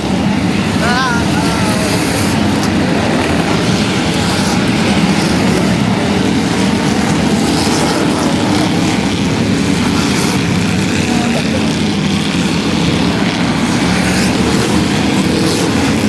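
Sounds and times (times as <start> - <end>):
racing car engines: 0.0 - 16.0.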